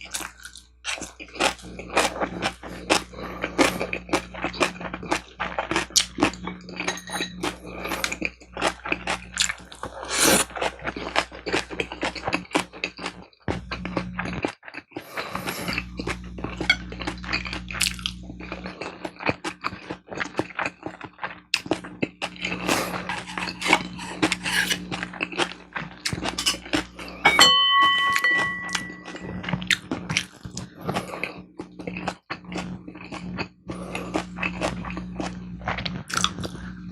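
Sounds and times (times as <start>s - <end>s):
chewing with crisp crunches: 0.0s - 27.4s, 28.0s - 36.9s
bright ringing clink: 6.9s - 7.4s, 27.2s - 29.4s.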